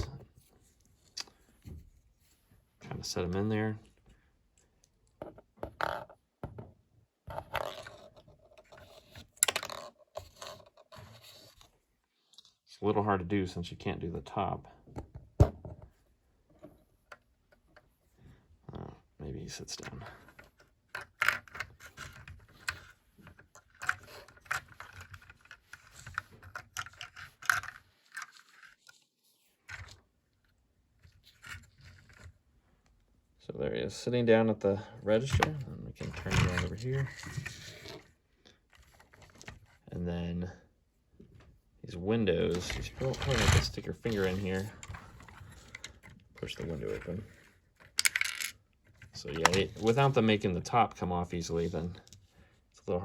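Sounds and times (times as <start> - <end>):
plastic toy parts clicking: 47.8 - 48.6.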